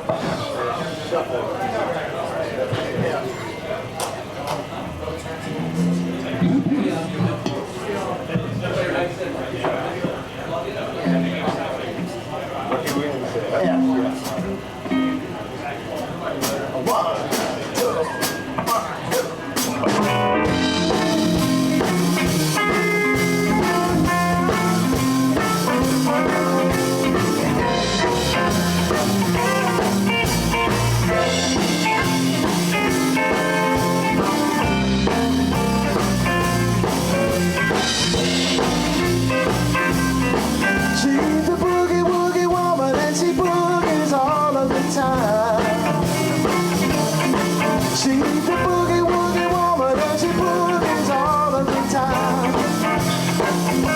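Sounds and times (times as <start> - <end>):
live blues band playing: 5.6 - 6.8, 13.6 - 15.4, 17.3 - 53.9
bending guitar lead notes: 11.0 - 11.5, 13.6 - 15.4, 19.9 - 42.0, 44.5 - 53.9.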